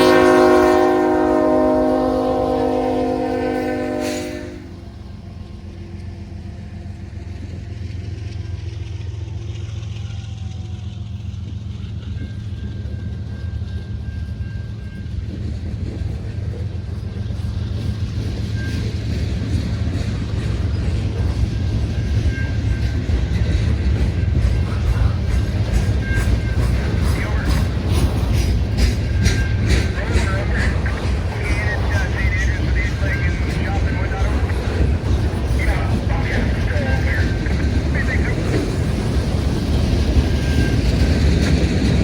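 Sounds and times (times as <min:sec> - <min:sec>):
freight train horn: 0:00.0 - 0:05.0
diesel locomotives rumbling: 0:00.0 - 0:42.0
train wheels clicking over rails: 0:05.1 - 0:42.0.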